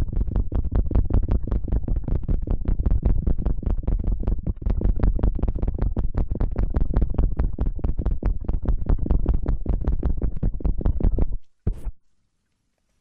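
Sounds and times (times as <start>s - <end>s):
close-up scratching strokes: 10.9s - 12.0s.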